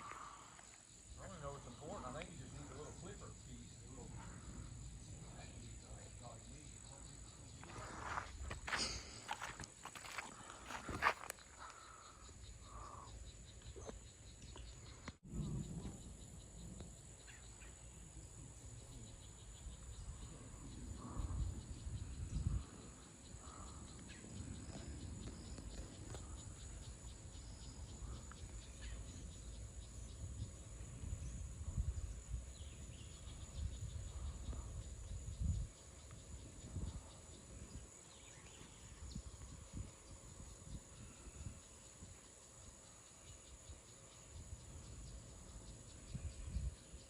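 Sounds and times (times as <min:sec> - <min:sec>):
high-pitched insect chorus: 0:00.0 - 0:47.0
wind gusting on microphone: 0:18.5 - 0:28.2, 0:30.0 - 0:42.2, 0:46.0 - 0:47.0.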